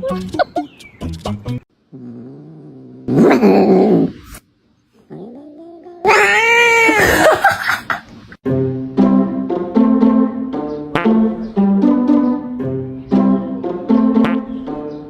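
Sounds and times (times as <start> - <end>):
cat yowling: 5.1 - 7.4.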